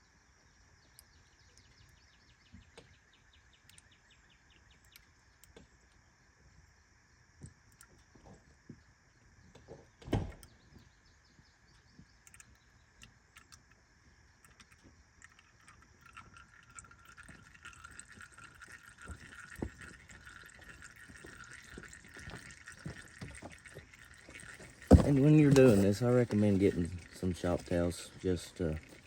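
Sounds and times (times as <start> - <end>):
oil trickling and dripping: 0.8 - 6.2, 11.6 - 29.0.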